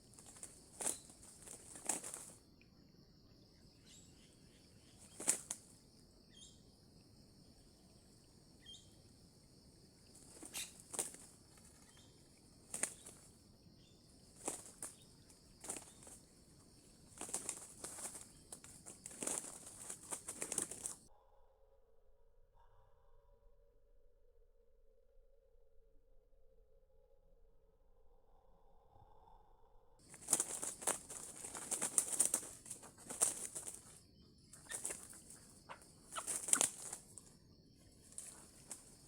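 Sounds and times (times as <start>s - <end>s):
wings flapping: 0.0s - 2.4s, 4.9s - 5.8s, 10.0s - 21.1s, 30.0s - 39.0s.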